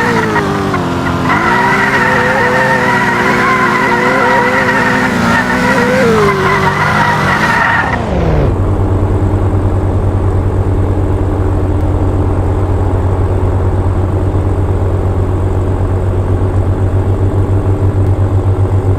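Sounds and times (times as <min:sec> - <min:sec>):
tyres squealing: 0:00.0 - 0:08.1
car engine revving and idling: 0:00.0 - 0:18.9.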